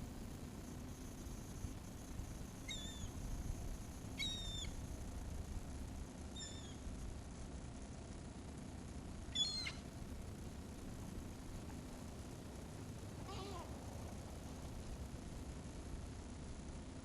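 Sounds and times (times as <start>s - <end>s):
gulls calling: 2.6s - 3.2s, 4.1s - 4.8s, 9.3s - 9.9s, 13.2s - 13.8s.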